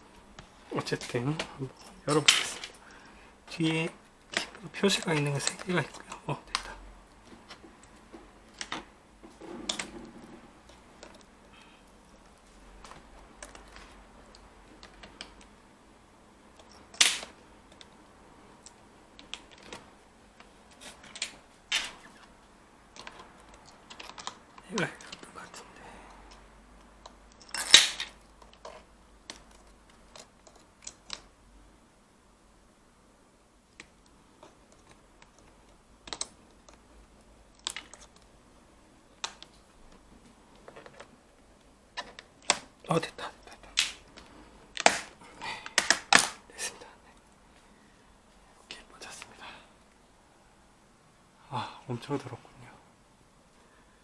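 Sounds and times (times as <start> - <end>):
loud plastic snaps: 44.8 - 46.5
plastic keyboard clicks and snaps: 45.7 - 46.4.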